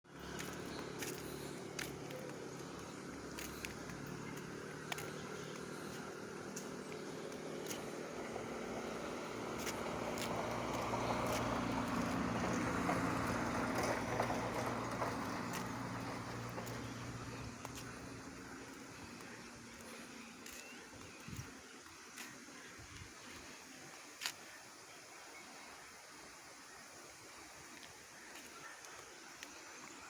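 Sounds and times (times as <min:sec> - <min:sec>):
motor engine humming: 0:00.1 - 0:21.5.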